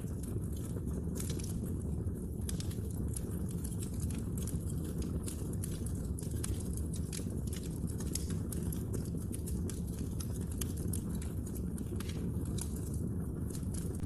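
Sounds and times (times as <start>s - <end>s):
low rumble of burning: 0.0s - 14.0s
wood fire crackling: 0.0s - 14.0s.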